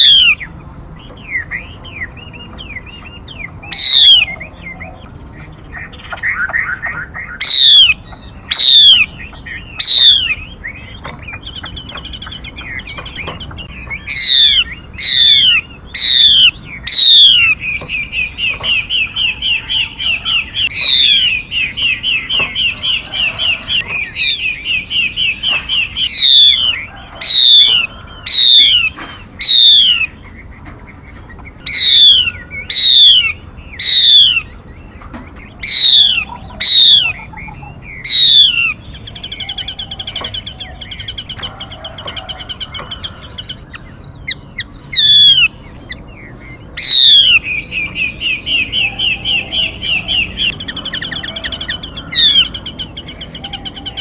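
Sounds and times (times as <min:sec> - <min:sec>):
bird chattering trill: 0:00.0 - 0:54.0.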